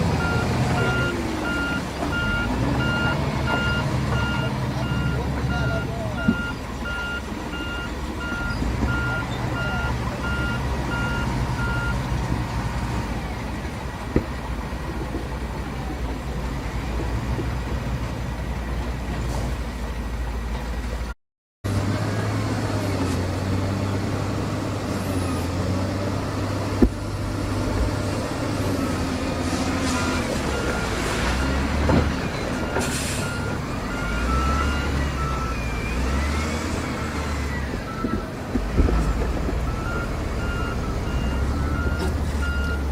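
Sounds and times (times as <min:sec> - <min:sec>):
heavy diesel machinery running: 0:00.0 - 0:21.1, 0:21.7 - 0:42.9
reversing alarm beeping: 0:00.2 - 0:12.0, 0:32.3 - 0:38.2, 0:39.7 - 0:42.9.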